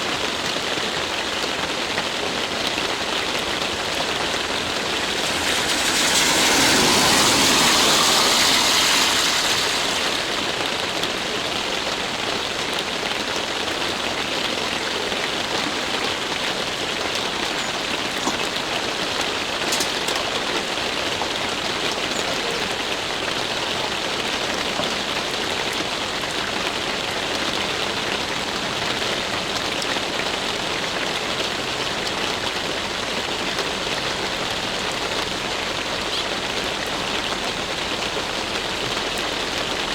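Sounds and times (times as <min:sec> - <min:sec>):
rain-like hiss: 0:00.0 - 0:39.9.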